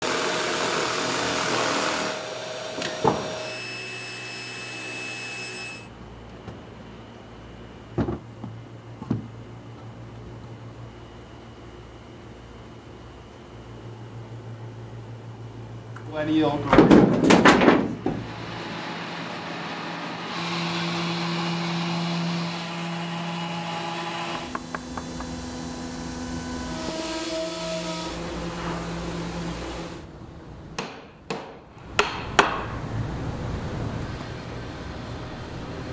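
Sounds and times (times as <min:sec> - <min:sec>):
electric power tool whining: 0:00.0 - 0:05.9
power tool running: 0:00.0 - 0:05.9, 0:18.2 - 0:30.0.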